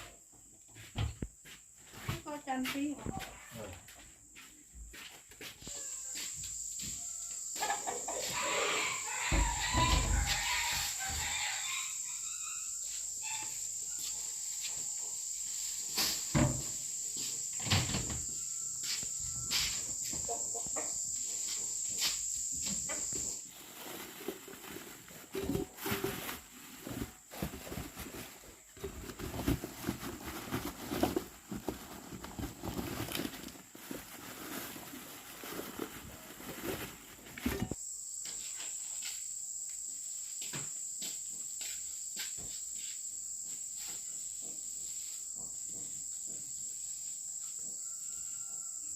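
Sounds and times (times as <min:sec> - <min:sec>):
insect trilling: 0:05.7 - 0:34.0.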